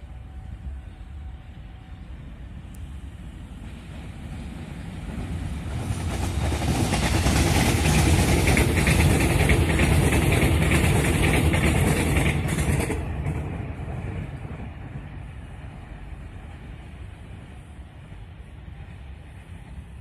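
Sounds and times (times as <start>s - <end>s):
trains passing at speed: 0.0s - 20.0s
wheels clattering on rails: 5.0s - 14.2s.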